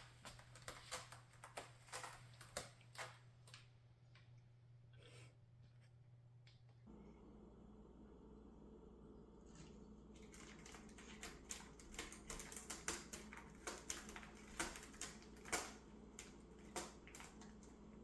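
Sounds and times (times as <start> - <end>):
cat scratching: 0.0 - 3.6, 10.2 - 18.0.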